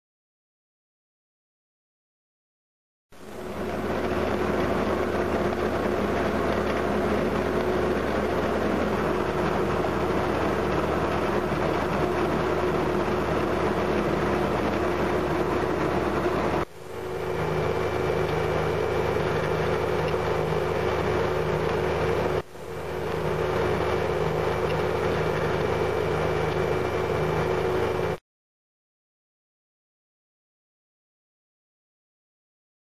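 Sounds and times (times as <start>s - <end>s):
cold planer milling pavement: 3.2s - 28.2s.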